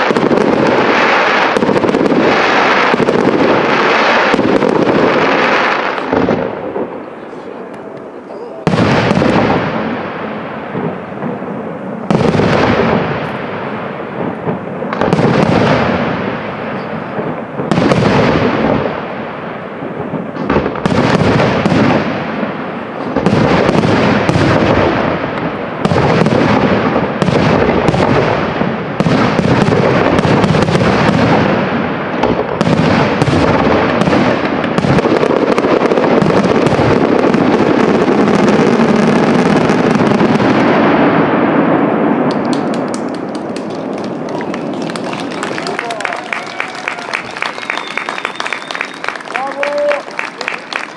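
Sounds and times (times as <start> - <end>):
firework shells bursting: 42.0 - 50.9.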